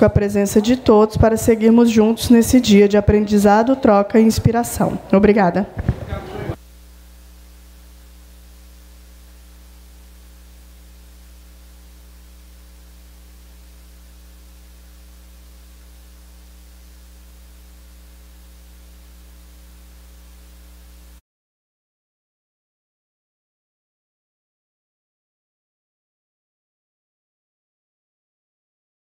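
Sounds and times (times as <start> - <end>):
electrical mains hum: 0.0 - 21.2.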